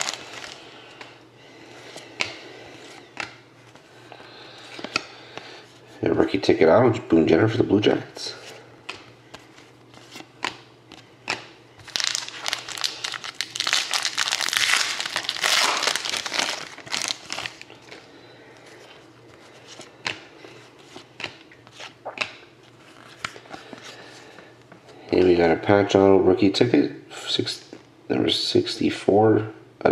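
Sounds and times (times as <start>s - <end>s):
wrapper crinkling and tearing: 0.0s - 0.6s, 11.8s - 18.0s.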